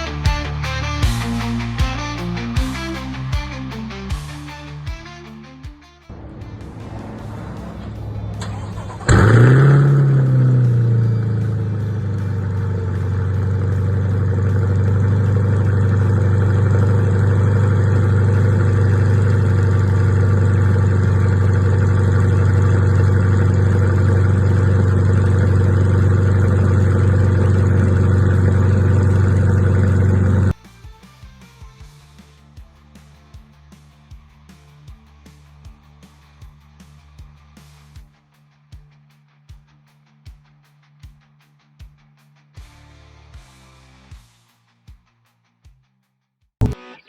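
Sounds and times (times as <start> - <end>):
car engine starting and idling: 6.1 - 30.6
engine rev flare: 6.1 - 30.6.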